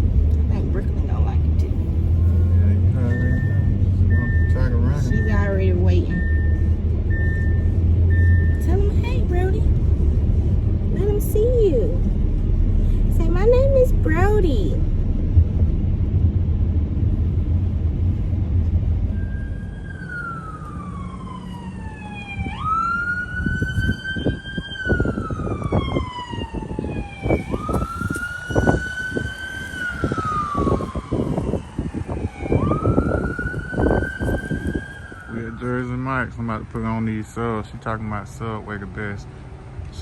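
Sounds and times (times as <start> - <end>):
low thumps: 0.0 - 19.8
low rumble: 0.0 - 39.0
electronic siren wailing: 3.0 - 9.6, 19.1 - 35.6.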